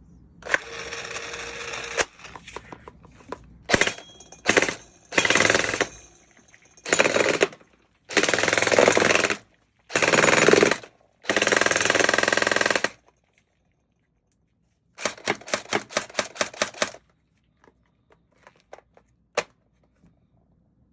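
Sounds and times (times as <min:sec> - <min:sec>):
gel blaster full-auto bursts: 0:08.1 - 0:13.0.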